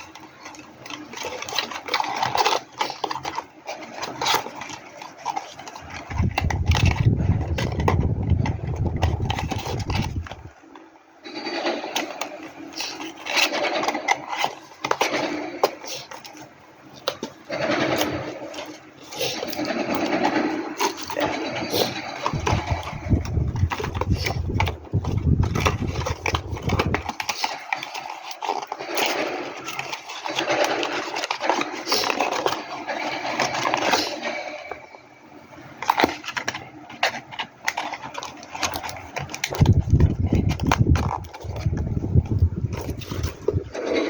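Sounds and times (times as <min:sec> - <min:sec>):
packaging clicks and rustles: 0:00.0 - 0:44.0.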